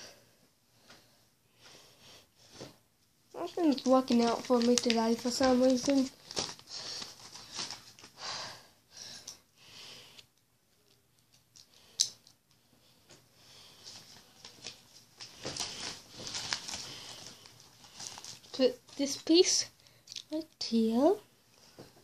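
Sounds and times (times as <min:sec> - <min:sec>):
sharp click of pieces: 0:10.9 - 0:12.4.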